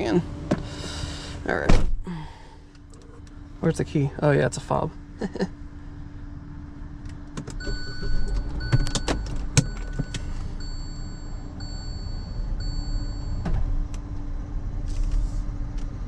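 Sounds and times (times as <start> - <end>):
steady low hum: 0.0 - 16.0
car warning chime beeps: 7.6 - 13.5.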